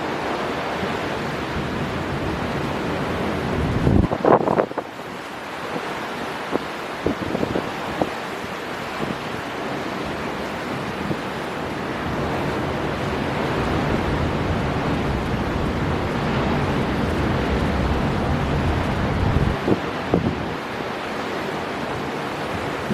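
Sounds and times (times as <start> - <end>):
wind blowing hard: 0.0 - 22.9
wind buffeting microphone: 0.6 - 4.9, 10.0 - 20.6
surf breaking: 9.9 - 22.9.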